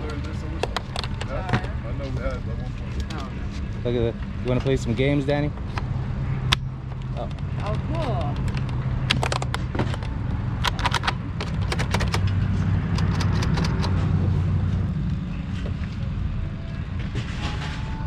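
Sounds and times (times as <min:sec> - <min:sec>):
low rumble: 0:00.0 - 0:18.0
plastic cases clicking: 0:08.3 - 0:14.0.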